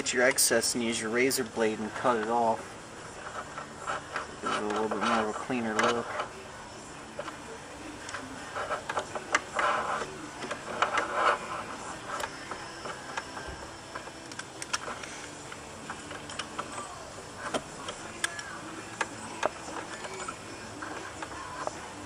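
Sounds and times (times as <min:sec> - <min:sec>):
blade scraping cloth: 0:01.4 - 0:06.4, 0:08.4 - 0:14.1.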